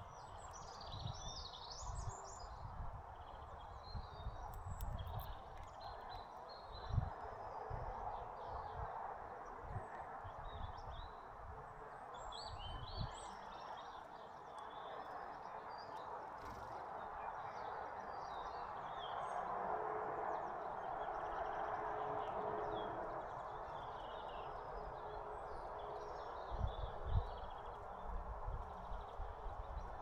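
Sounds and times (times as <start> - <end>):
songbirds chirping: 0.0 - 30.0.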